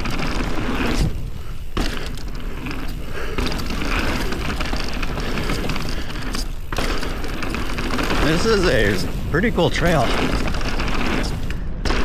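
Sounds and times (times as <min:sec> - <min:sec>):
bike frame and chain rattling: 0:00.0 - 0:12.0
bike tyres rolling over dirt and rock: 0:00.0 - 0:12.0
bike landing thump: 0:00.1 - 0:02.8.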